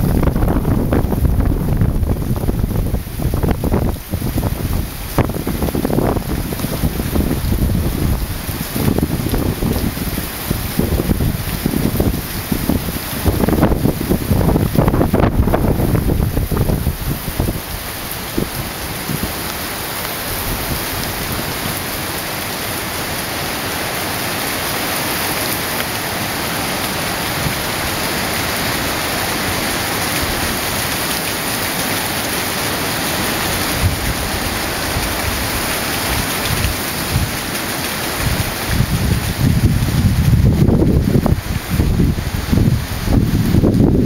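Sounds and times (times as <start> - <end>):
heavy rain pouring: 0.0 - 44.0
wind gusting against microphone: 0.0 - 44.0.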